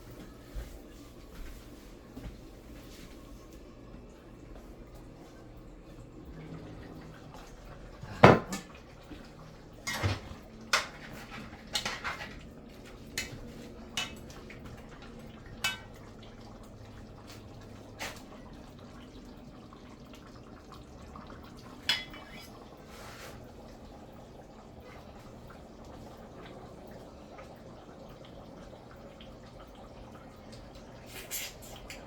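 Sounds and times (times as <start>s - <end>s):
metal utensils clinking on pots: 9.8s - 16.5s, 21.8s - 22.7s.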